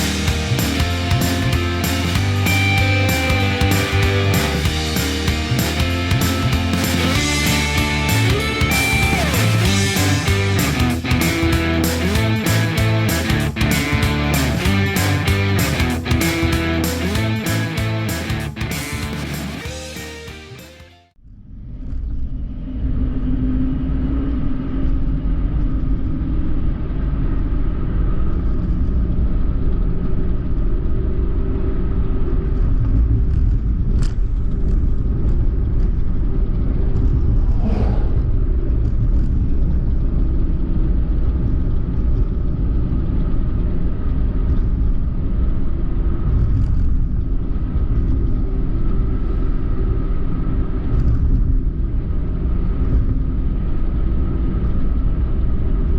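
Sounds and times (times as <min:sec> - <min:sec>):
car engine and tyre rumble: 0:21.5 - 0:55.9.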